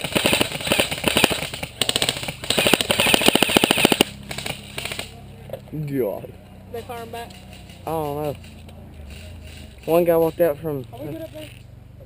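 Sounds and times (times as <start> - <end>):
airsoft gun firing full-auto: 0.0 - 5.1.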